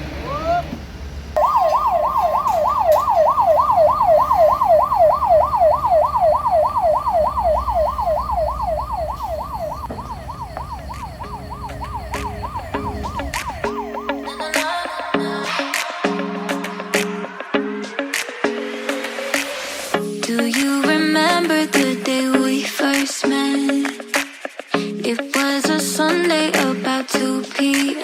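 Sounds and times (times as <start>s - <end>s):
engine idling hum: 0.0s - 14.4s
electronic yelp siren: 1.4s - 15.3s.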